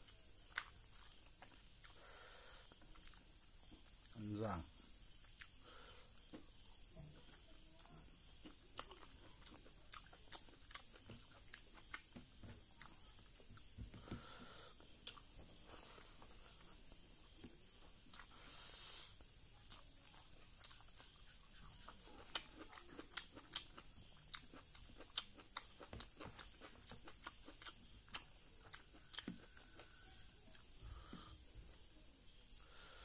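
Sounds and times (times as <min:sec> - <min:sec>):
person chewing with lip smacks: 0:00.0 - 0:02.0, 0:02.9 - 0:03.2, 0:08.4 - 0:12.2, 0:19.6 - 0:29.9
faint high-pitched whine: 0:00.0 - 0:33.0.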